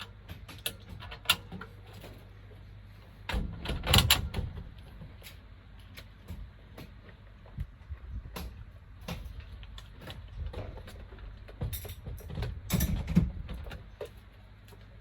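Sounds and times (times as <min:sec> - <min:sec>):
irregular knocks and clatter: 0:08.3 - 0:14.2.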